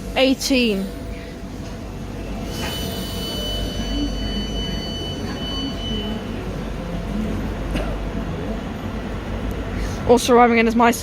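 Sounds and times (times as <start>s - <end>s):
train high-pitched whine: 0.0s - 10.9s
train low rumble: 0.0s - 11.0s.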